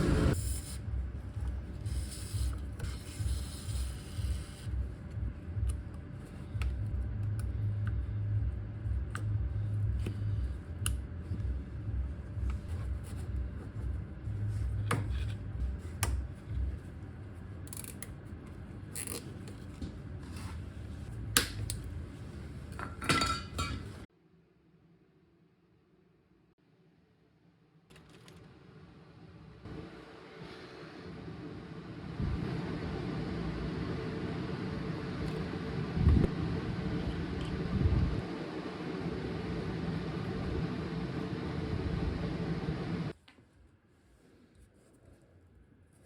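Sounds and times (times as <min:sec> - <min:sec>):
low pulsing rumble: 0:03.8 - 0:17.0, 0:35.7 - 0:38.4.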